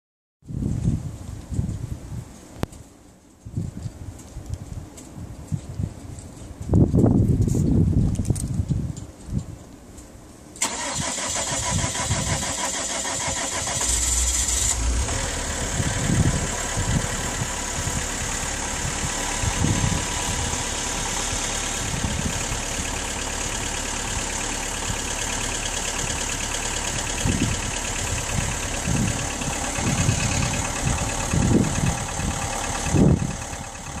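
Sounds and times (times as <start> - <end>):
diesel engine starting and idling: 10.6 - 34.0.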